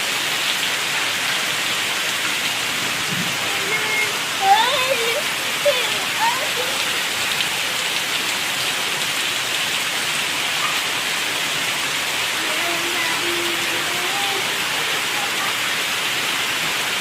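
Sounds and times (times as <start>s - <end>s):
heavy rain falling: 0.0s - 17.0s
faint child's voice: 3.4s - 7.1s, 12.3s - 15.9s.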